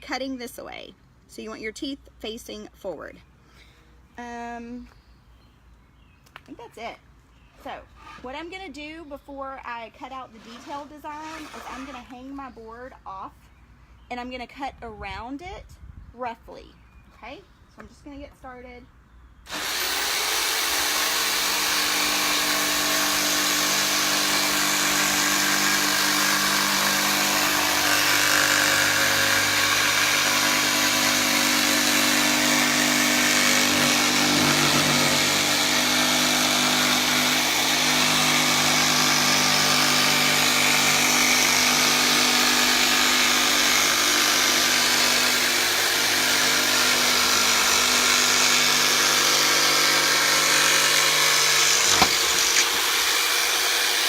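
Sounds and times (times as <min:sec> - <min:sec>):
jigsaw cutting wood: 0:19.5 - 0:54.0.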